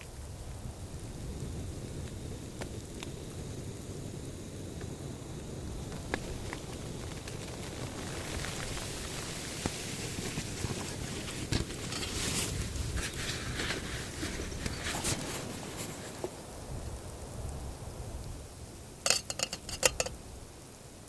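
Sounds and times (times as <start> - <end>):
blizzard wind: 0.2 - 18.8
snow on a tarp: 5.4 - 16.7
gear rustling: 5.8 - 16.3.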